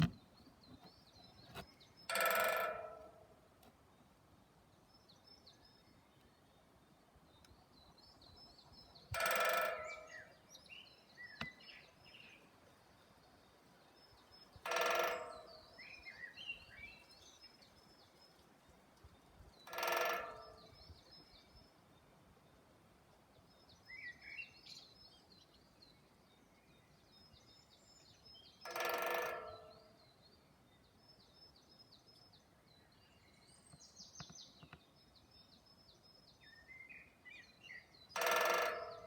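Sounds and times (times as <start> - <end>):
woodpecker drumming on wood: 0.0 - 3.3, 9.0 - 10.4, 14.6 - 16.0, 19.7 - 20.8, 28.6 - 29.9, 38.1 - 39.0
small birds chirping: 31.0 - 39.0.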